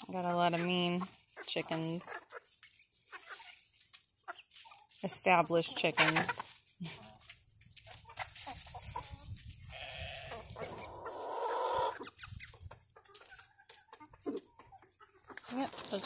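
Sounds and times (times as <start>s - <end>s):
chickens clucking: 0.0s - 16.0s
harsh chicken squawk: 8.0s - 13.2s.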